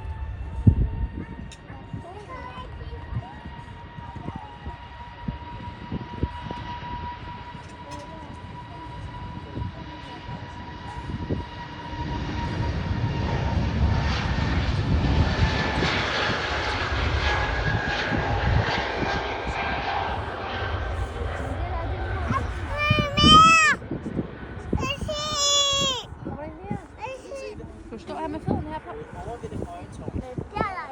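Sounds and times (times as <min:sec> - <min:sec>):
jet airliner taking off: 0:08.4 - 0:26.1.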